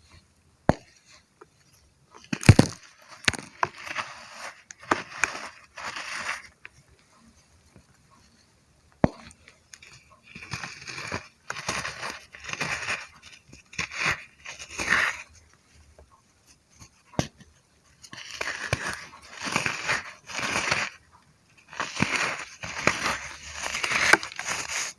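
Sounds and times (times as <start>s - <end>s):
brittle chunks crunching: 2.2s - 6.5s, 21.6s - 24.9s.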